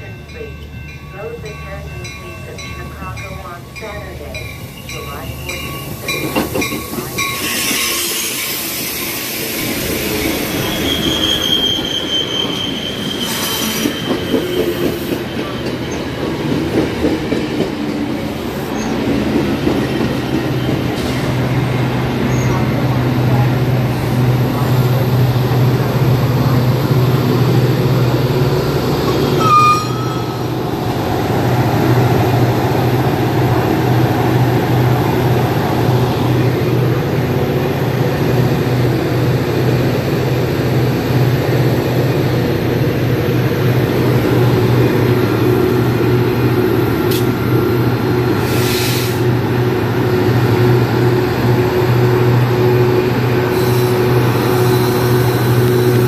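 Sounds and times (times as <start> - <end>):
diesel locomotive humming: 0.0 - 56.0
short high squeal: 29.4 - 30.4.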